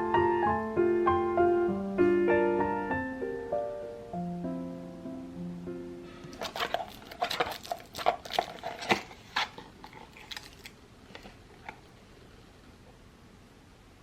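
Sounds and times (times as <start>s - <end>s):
crackling and clicking of handling: 6.2s - 13.0s.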